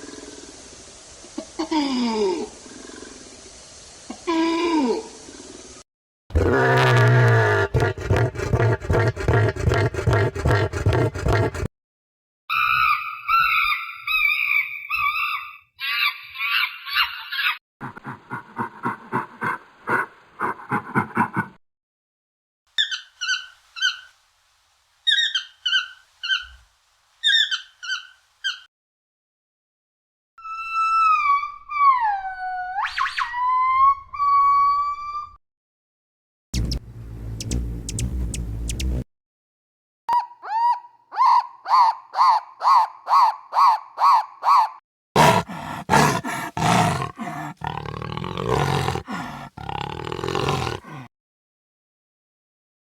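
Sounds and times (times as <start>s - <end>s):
rough roaring calls: 6.4s - 11.7s, 45.2s - 51.1s.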